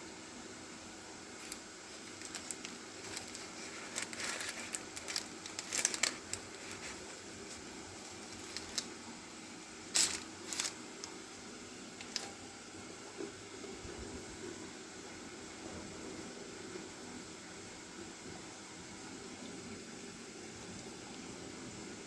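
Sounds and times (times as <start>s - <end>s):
steady faint hiss: 0.0s - 22.0s
crinkling rustles: 1.3s - 9.0s, 9.9s - 11.2s, 12.0s - 12.4s.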